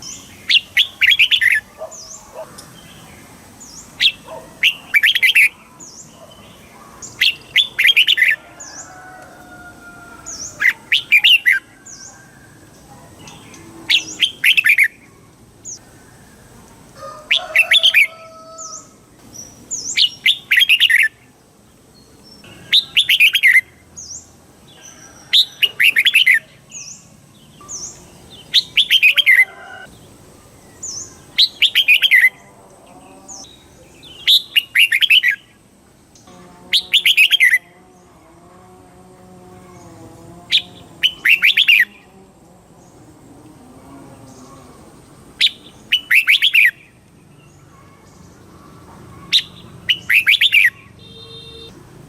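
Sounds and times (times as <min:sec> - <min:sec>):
bird whistled song: 0:19.8 - 0:21.2, 0:22.6 - 0:23.6, 0:30.8 - 0:32.3, 0:34.2 - 0:35.4, 0:45.4 - 0:46.8, 0:49.3 - 0:51.7.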